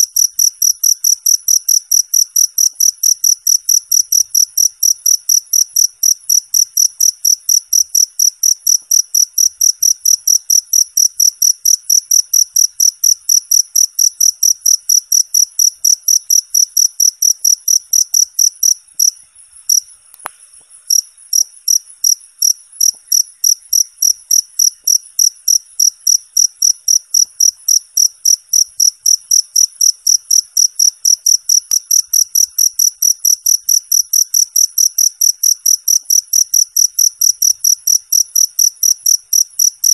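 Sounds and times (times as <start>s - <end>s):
cricket chirping: 0.0s - 39.9s
single click: 20.1s - 20.4s.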